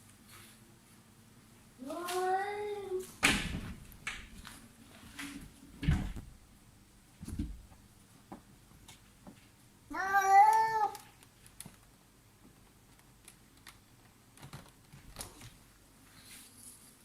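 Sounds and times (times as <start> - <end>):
cat meowing: 9.9 - 11.0
faint clicks and taps: 10.4 - 15.6.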